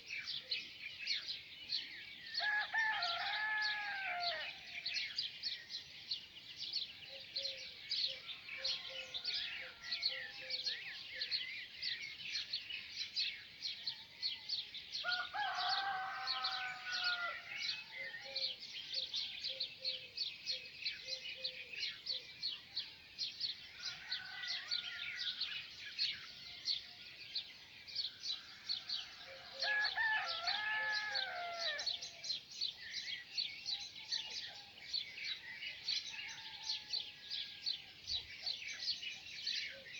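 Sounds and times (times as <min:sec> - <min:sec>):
small birds chirping: 0:00.0 - 0:39.9
rooster crowing: 0:02.4 - 0:04.5, 0:15.0 - 0:17.5, 0:23.8 - 0:25.3, 0:29.5 - 0:31.9.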